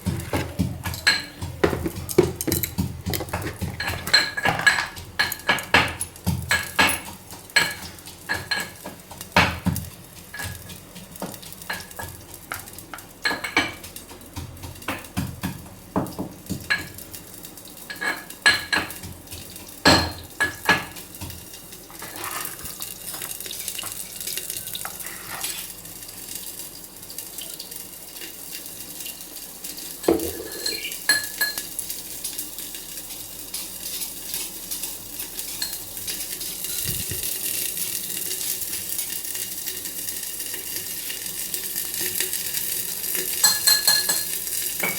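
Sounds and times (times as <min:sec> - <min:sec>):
metal utensils clinking on pot: 0:00.0 - 0:09.0, 0:17.9 - 0:19.1, 0:30.0 - 0:32.4, 0:33.5 - 0:37.0, 0:43.2 - 0:44.9
frying in hot oil sizzling: 0:00.0 - 0:44.9.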